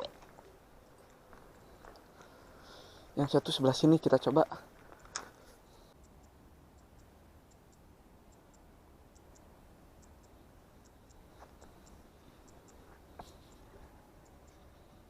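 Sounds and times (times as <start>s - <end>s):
faint high ticks: 4.8s - 15.0s.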